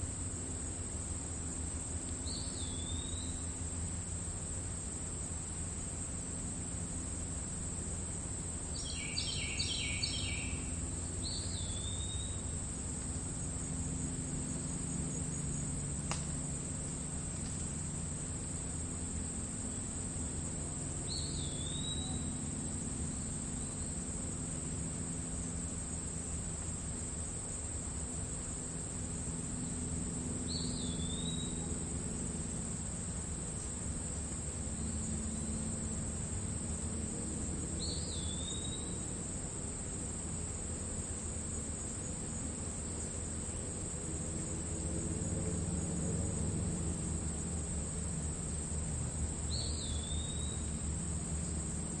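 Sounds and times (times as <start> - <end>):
crickets trilling: 0.0 - 52.0
steady low hum: 0.0 - 52.0
bird chirping: 8.8 - 12.4, 21.1 - 22.3, 49.5 - 50.7.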